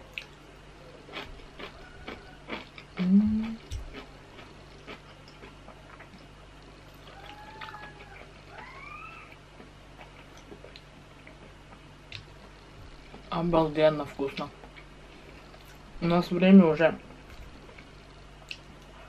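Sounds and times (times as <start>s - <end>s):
person chewing: 0.0s - 8.7s, 9.3s - 13.2s
person humming: 3.0s - 3.6s
cat meowing: 7.1s - 9.4s.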